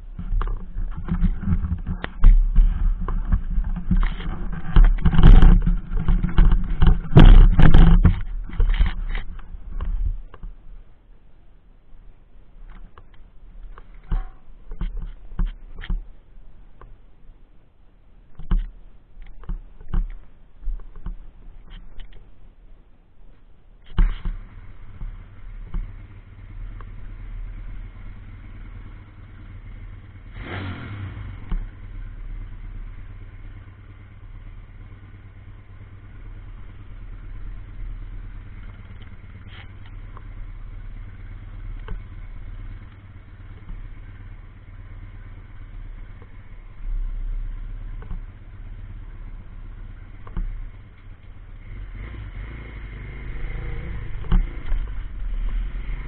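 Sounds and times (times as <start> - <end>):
pit bike engine running: 0.0 - 10.2, 24.0 - 56.0.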